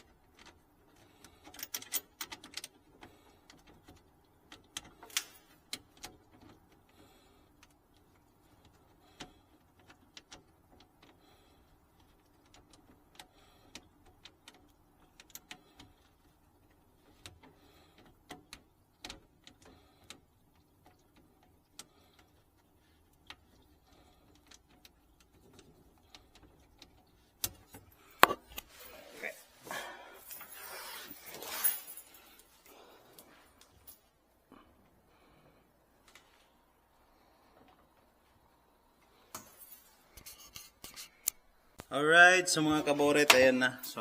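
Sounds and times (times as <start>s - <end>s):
clicks and knocks on plumbing fittings: 0.0s - 28.8s.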